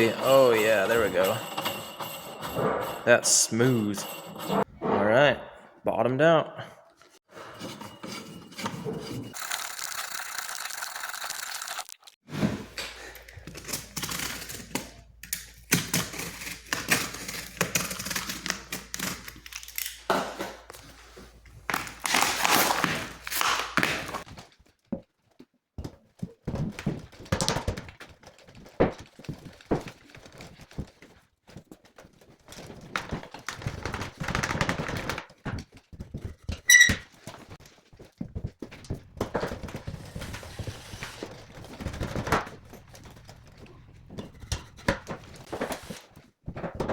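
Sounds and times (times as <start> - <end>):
knocks and clatter of parts: 0.0 - 5.1, 23.8 - 46.9
high squeak: 36.7 - 37.0.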